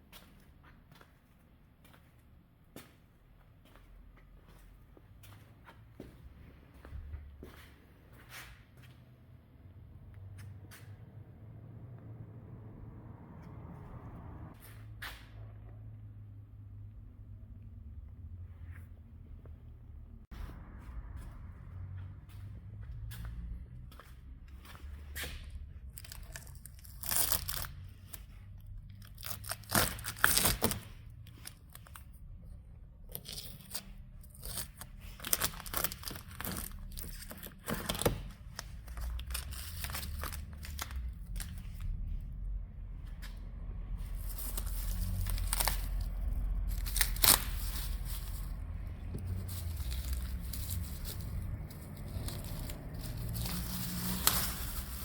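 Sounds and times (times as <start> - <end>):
sheet material tearing and crinkling: 25.9 - 28.2, 28.9 - 32.1, 33.1 - 41.9, 44.1 - 55.0.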